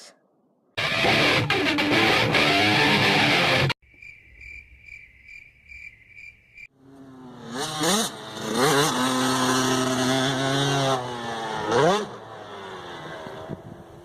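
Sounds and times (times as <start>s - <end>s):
music: 0.8s - 3.8s
cricket chirping: 3.8s - 6.7s
dirt bike engine revving: 6.8s - 14.0s.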